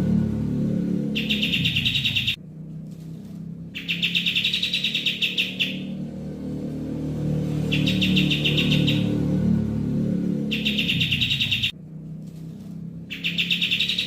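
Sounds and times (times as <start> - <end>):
songbird buzzy trill: 0.0 - 2.4, 3.8 - 6.0, 7.6 - 9.6, 10.4 - 11.7, 13.1 - 14.0
steady low hum: 0.0 - 14.0.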